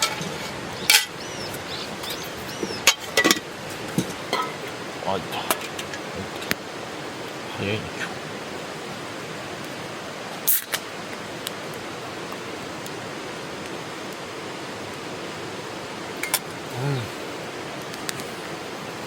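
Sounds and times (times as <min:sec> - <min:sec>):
campfire snapping and popping: 0:10.4 - 0:13.0
person humming low: 0:16.6 - 0:17.3.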